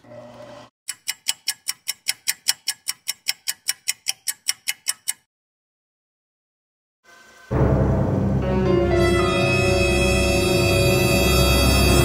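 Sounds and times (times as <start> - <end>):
clock ticking fast: 0.9 - 5.3.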